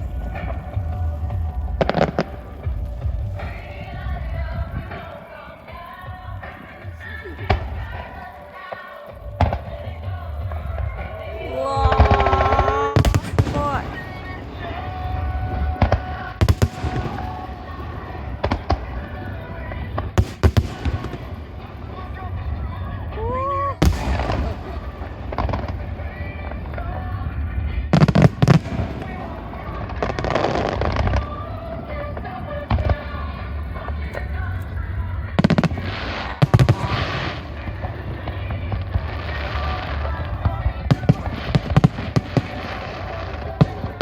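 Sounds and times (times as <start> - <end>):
low rumble: 0.0 - 8.4
fireworks shells bursting: 0.0 - 44.0.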